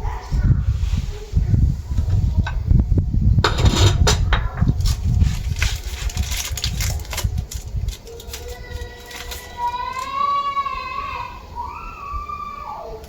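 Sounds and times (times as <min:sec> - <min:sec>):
objects clinking and knocking: 0:03.4 - 0:05.0.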